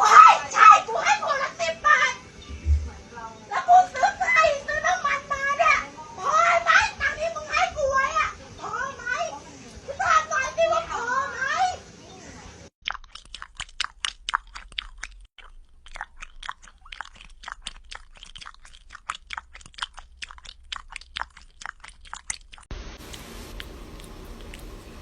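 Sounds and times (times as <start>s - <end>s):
cat crunching food: 12.8s - 25.0s
steady hiss: 22.7s - 25.0s.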